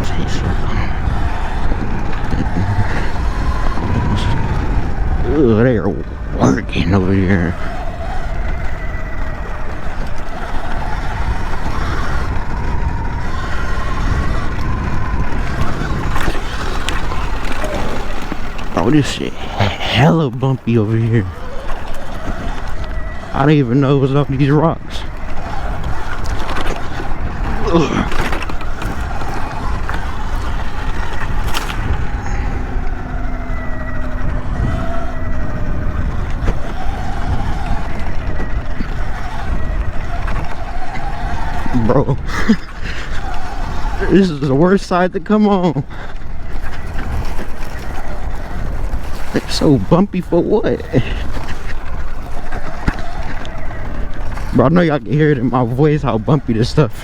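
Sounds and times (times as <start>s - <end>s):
electric motor whine: 0.0s - 57.0s
wind rumble on microphone: 0.0s - 57.0s
bike knocking over rocks: 24.9s - 32.9s, 50.7s - 54.9s.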